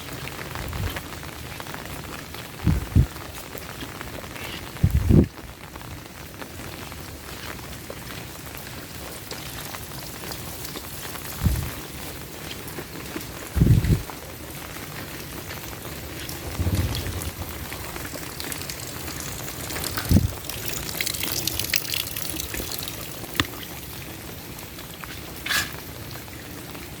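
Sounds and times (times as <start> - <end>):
heavy rain falling: 0.0 - 25.1
water trickling and pouring: 6.4 - 27.0.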